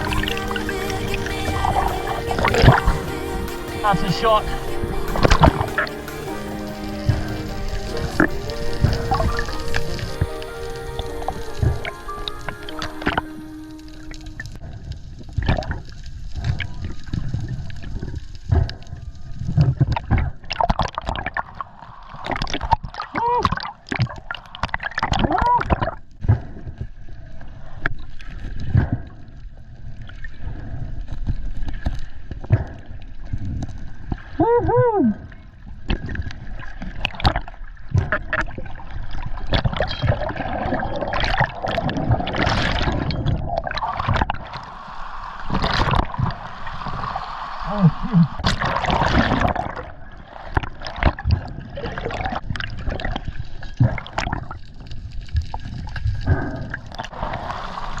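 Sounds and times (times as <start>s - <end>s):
whale calls: 0.0s - 14.7s
water gurgling and rushing: 0.0s - 26.2s, 26.9s - 58.0s.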